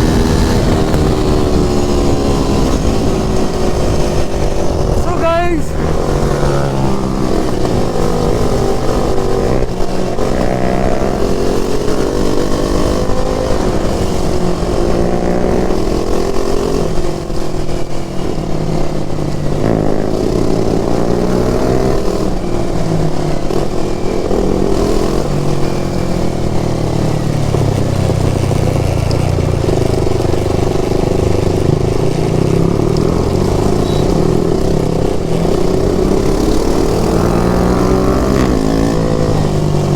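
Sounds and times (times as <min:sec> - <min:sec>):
motorcycle engine shifting gears: 0:00.0 - 0:39.9.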